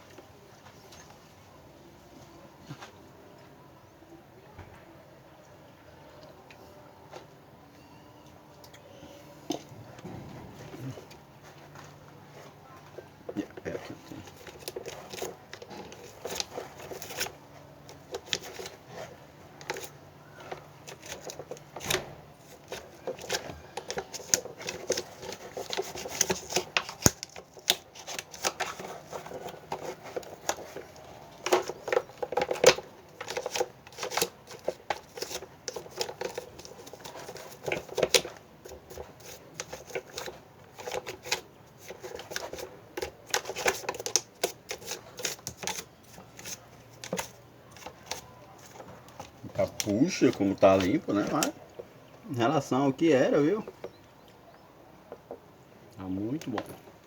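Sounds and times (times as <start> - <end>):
plastic fan parts clicking: 13.5 - 51.9.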